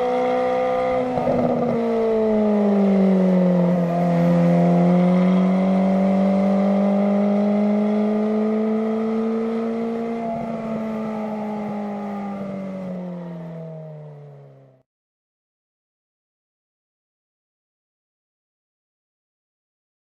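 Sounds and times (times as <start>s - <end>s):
sports car engine howling: 0.0s - 14.8s.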